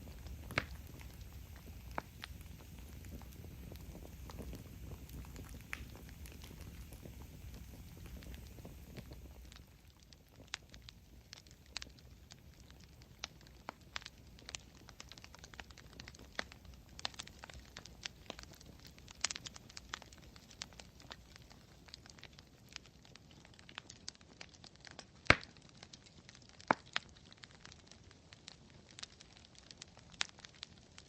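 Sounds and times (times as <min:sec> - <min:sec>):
low hiss: 0:00.0 - 0:22.1
campfire crackling: 0:00.0 - 0:31.0.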